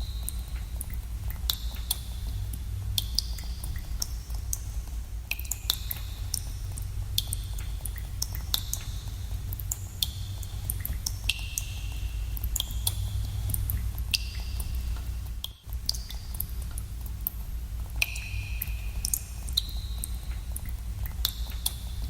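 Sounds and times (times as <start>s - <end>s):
water drops plinking into pools: 0.0s - 2.0s, 5.3s - 17.4s, 18.0s - 21.8s.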